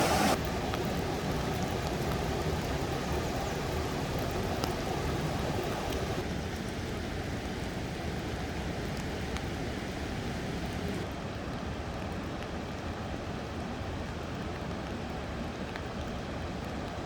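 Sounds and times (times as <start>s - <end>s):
stream water rushing: 0.0s - 11.8s.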